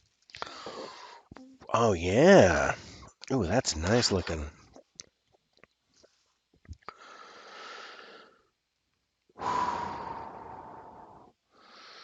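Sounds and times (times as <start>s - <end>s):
man exhaling and sighing: 9.4s - 11.3s.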